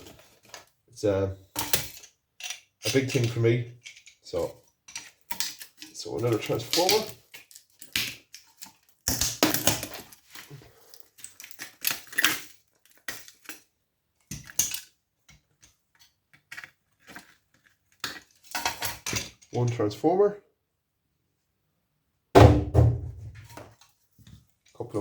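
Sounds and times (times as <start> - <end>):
component cracking off circuit board: 5.2 - 10.1.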